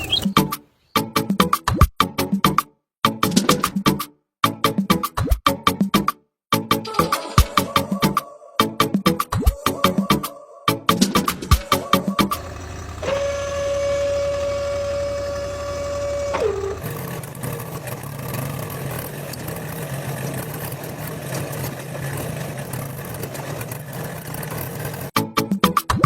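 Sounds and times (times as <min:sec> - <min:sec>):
machine motor running: 0:11.5 - 0:25.2
high whine: 0:11.6 - 0:17.3.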